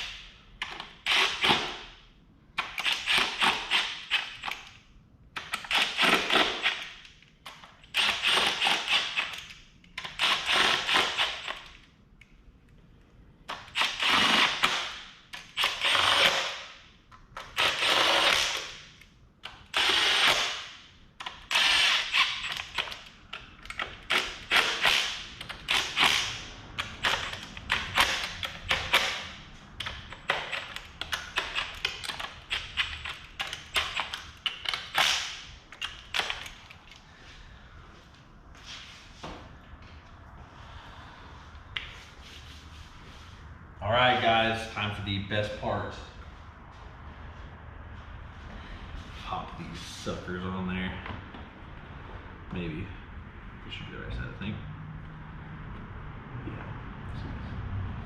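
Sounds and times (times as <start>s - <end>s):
power tool rattling bursts: 13.7s - 16.7s, 21.4s - 23.0s.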